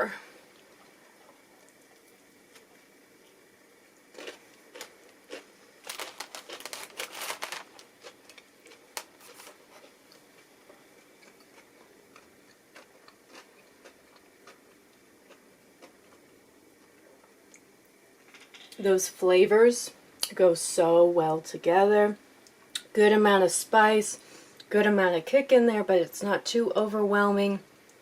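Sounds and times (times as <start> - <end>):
crunching of fried food: 4.1 - 16.4.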